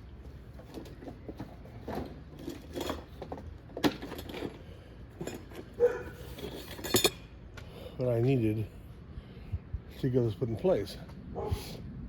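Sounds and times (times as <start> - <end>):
small metal hardware clinking: 5.2 - 7.2.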